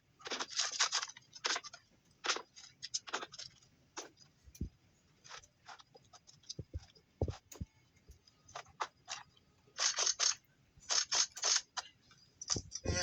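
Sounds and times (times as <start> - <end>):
knocks and clicks: 6.5 - 7.7.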